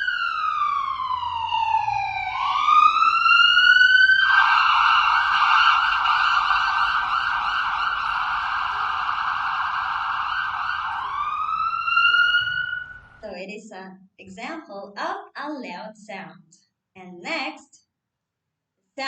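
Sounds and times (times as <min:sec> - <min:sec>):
ambulance siren wailing and yelping: 0:00.0 - 0:13.2.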